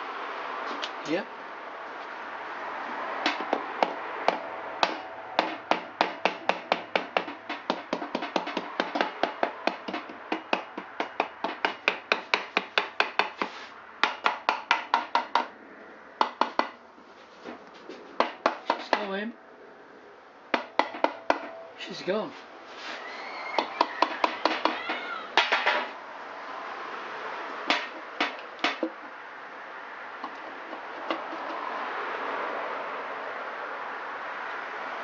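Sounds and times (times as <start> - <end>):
hammer tapping on metal cover: 3.2 - 13.3, 20.6 - 21.6, 23.6 - 25.9, 27.7 - 29.0.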